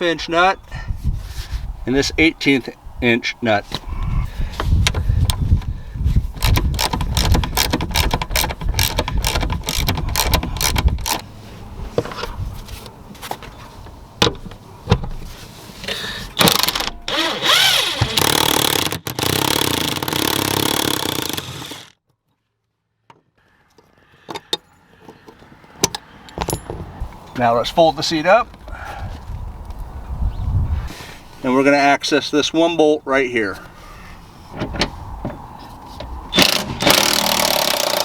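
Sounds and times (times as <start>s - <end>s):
metallic clicks and knocks: 6.4s - 11.3s, 24.3s - 27.4s
power tool whirring: 16.4s - 22.0s, 36.3s - 38.0s.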